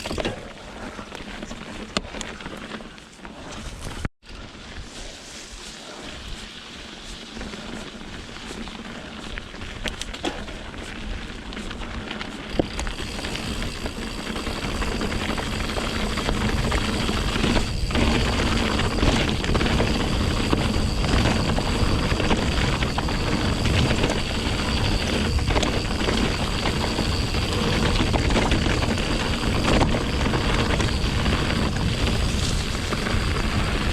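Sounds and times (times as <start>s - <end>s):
bike rattling over rocky ground: 6.7s - 33.9s
wind rushing over microphone: 12.5s - 33.9s.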